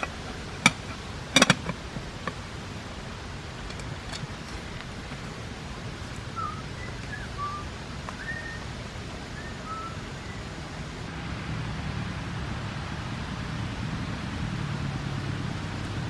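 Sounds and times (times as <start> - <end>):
steady low rumble: 0.0 - 16.0
bird whistled chirps: 6.2 - 11.0.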